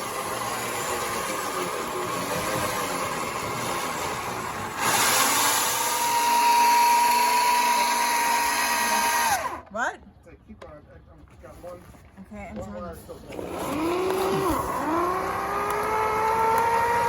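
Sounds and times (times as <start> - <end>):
mechanical running noise: 0.0 - 9.6, 13.4 - 17.0.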